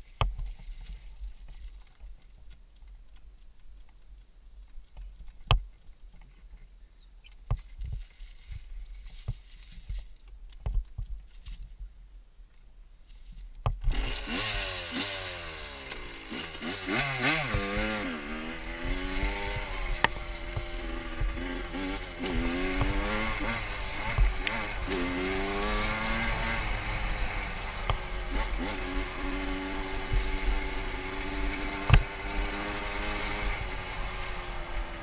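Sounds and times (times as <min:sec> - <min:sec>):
motorcycle engine revving: 0:13.8 - 0:35.0.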